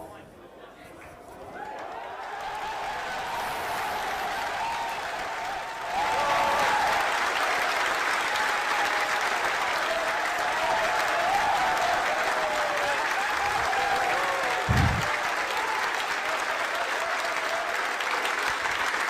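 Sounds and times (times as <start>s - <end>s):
crowd applauding and cheering: 1.4s - 19.0s
voices whooping: 9.8s - 17.7s
short low thump: 14.7s - 15.1s.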